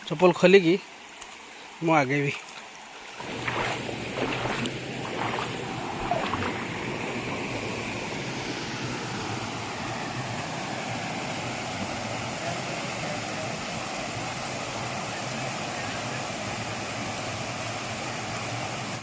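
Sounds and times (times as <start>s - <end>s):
stream water flowing: 0.0s - 19.0s
feet splashing in water: 2.3s - 8.4s.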